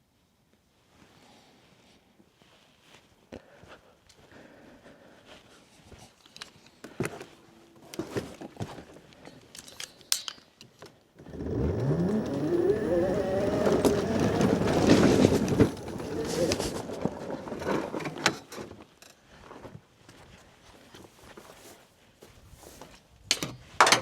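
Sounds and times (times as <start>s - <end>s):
engine starting and running: 11.2s - 18.3s.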